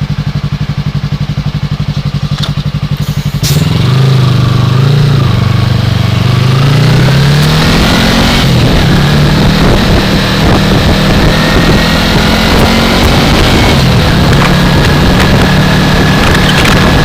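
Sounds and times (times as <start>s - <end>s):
motorcycle engine running: 0.0s - 17.0s
wind noise on microphone: 6.2s - 17.0s.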